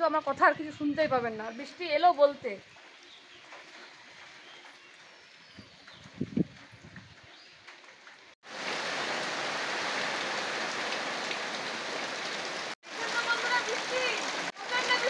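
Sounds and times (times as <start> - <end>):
heavy rain falling: 8.4 - 15.0.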